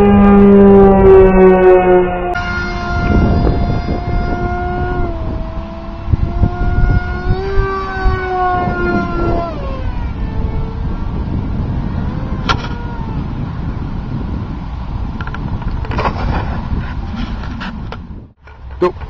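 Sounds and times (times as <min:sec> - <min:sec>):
wind rumble on microphone: 0:00.0 - 0:19.0
rc plane motor whining: 0:02.4 - 0:10.9.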